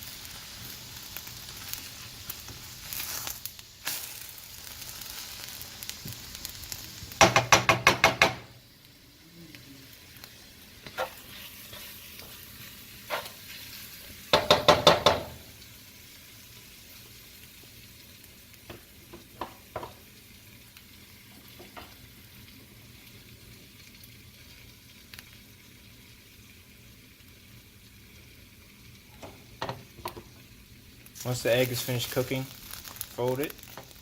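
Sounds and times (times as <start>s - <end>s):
eggs sizzling in a pan: 0.0s - 34.0s
utensil knocking against pan: 7.2s - 8.5s, 14.3s - 15.4s, 19.1s - 20.0s.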